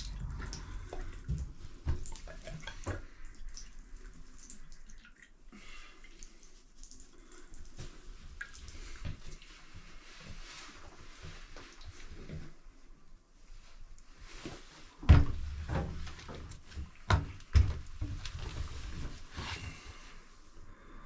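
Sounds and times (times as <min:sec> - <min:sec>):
water drips: 0:00.0 - 0:10.4.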